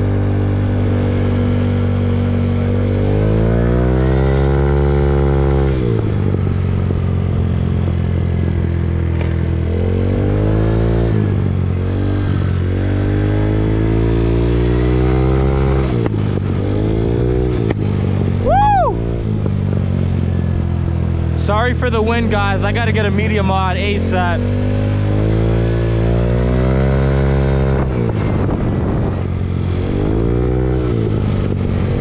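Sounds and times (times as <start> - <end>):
moped engine revving: 0.0 - 32.0
wind on microphone: 27.4 - 32.0.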